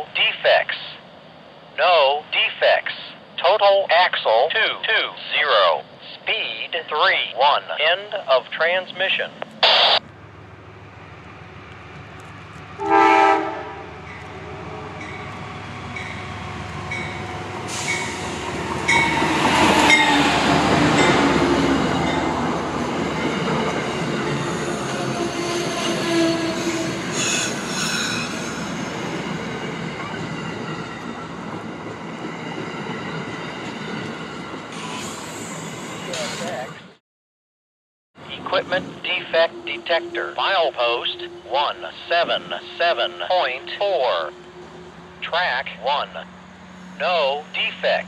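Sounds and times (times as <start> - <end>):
train wheels rumbling on rail: 9.3 - 36.7
train horn blast: 12.8 - 15.0.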